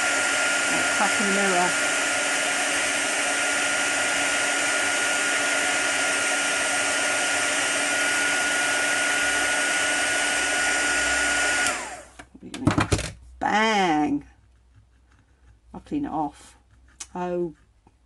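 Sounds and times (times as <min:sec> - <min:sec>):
heat gun blowing air: 0:00.0 - 0:12.2.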